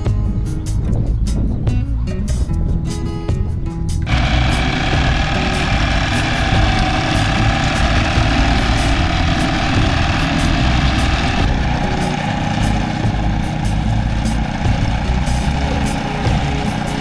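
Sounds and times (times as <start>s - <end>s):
low engine rumble: 0.0s - 17.0s
sustained music-like tones: 3.6s - 17.0s.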